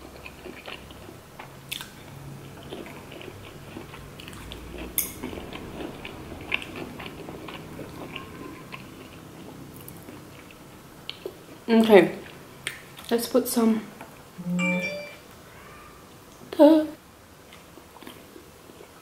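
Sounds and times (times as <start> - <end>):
person chewing food: 0.0 - 11.6, 17.4 - 19.0.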